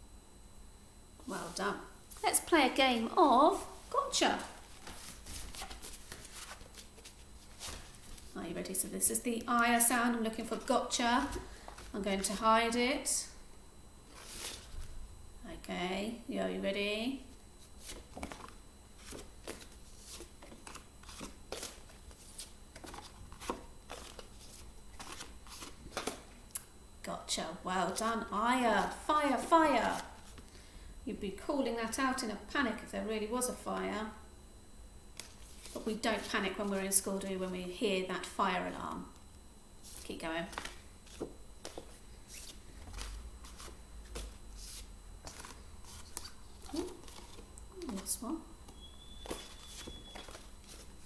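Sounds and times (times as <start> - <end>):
paper flashcards flipping: 4.7 - 8.3, 17.8 - 26.2, 35.2 - 36.8, 39.8 - 48.1, 48.7 - 51.0
flashcards flicking: 48.7 - 50.9.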